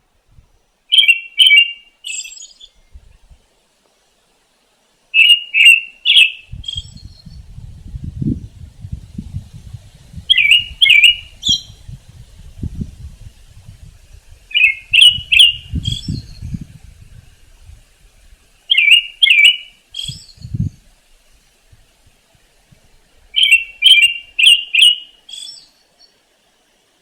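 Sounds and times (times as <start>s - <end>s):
faint low rumbling: 2.7s - 3.5s, 6.4s - 18.6s
songbird sharp sweeping notes: 10.3s - 11.9s, 14.5s - 16.7s.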